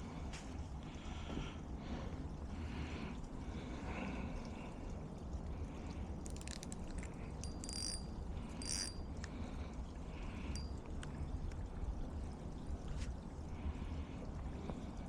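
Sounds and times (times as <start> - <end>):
creek water flowing: 0.0 - 15.0
short high-pitched bursts: 7.5 - 8.0.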